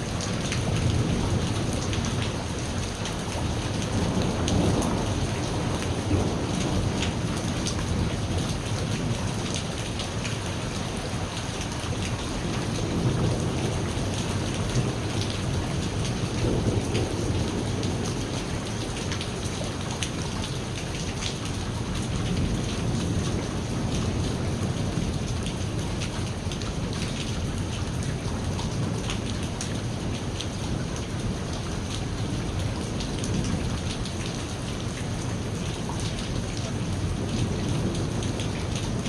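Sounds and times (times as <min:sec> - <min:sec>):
rain on hard surfaces: 0:00.0 - 0:39.0
thunder rumbling: 0:00.2 - 0:09.8, 0:11.9 - 0:19.9.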